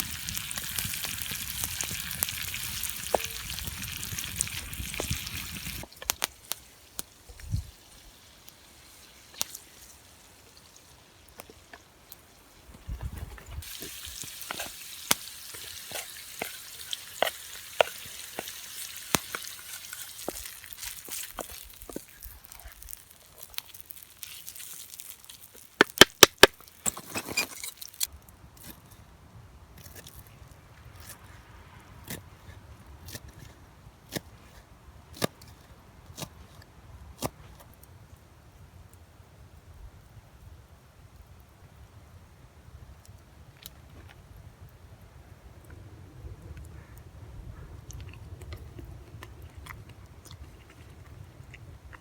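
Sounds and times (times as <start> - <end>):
sharp pops and crackles: 0.0 - 7.7, 11.2 - 28.1
food sizzling in a frying pan: 0.0 - 12.9, 13.6 - 26.0
low rumble of wind: 0.0 - 14.5, 28.0 - 52.0.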